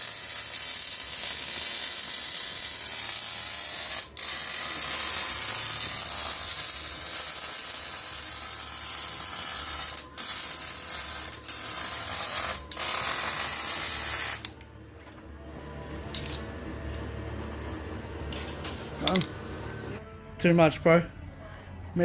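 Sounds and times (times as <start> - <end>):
welding arc crackling: 0.0 - 14.6.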